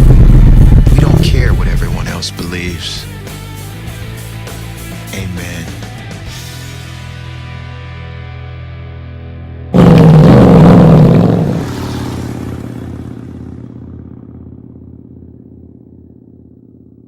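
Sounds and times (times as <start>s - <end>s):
motorcycle engine revving and idling: 0.0s - 2.3s, 9.8s - 17.0s.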